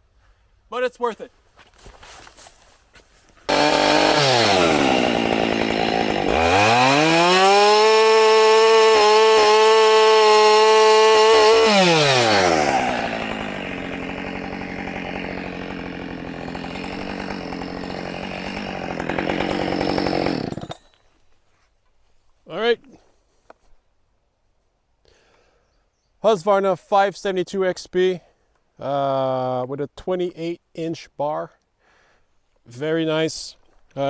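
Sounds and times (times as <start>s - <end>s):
chainsaw revving: 3.5s - 20.9s.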